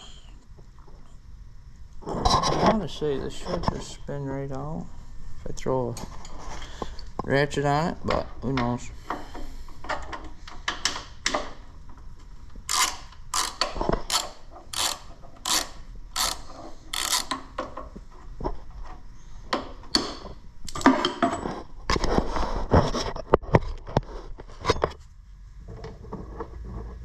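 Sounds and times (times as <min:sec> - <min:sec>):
ratchet wrench clicking: 0:12.7 - 0:17.5.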